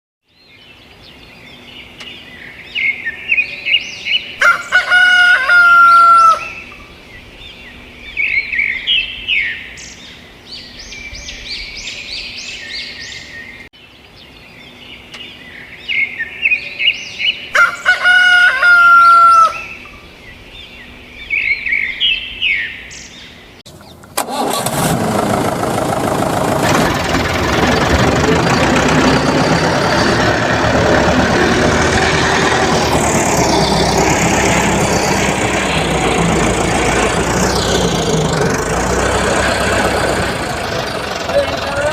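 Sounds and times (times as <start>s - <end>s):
rooster crowing: 4.4s - 6.7s, 17.5s - 19.8s
small birds chirping: 19.5s - 24.2s, 27.6s - 41.9s
loud steady motor noise: 24.2s - 41.9s.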